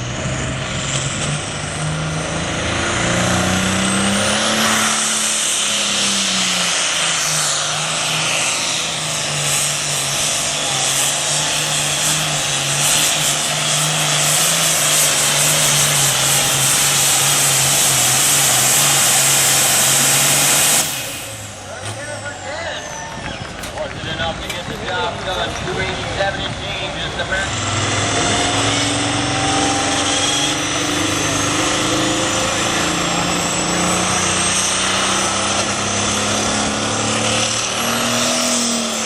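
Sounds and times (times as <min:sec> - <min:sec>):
tractor engine running at high revs: 0:00.0 - 0:39.0.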